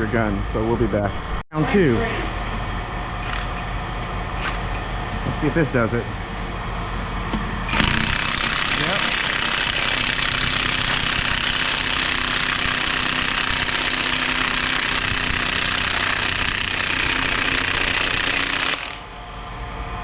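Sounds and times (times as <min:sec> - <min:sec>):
impact wrench hammering: 0:07.3 - 0:19.0.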